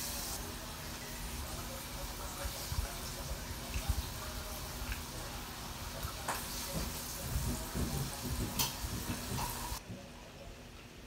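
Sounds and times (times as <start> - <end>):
steady hiss: 0.0 - 9.8
chewing crispy food: 2.4 - 6.8.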